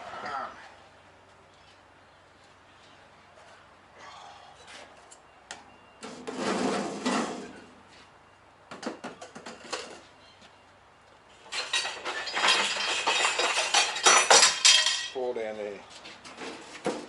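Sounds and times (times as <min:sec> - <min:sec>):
clattering and rustling: 0:11.4 - 0:15.2
hard objects clinking: 0:11.4 - 0:15.2.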